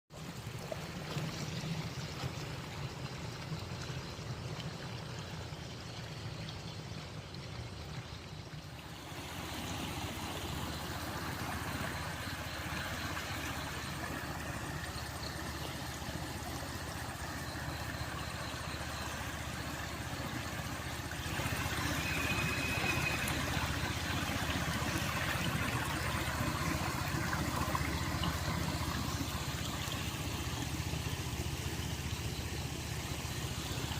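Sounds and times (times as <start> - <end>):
stream rushing: 8.6 - 33.9.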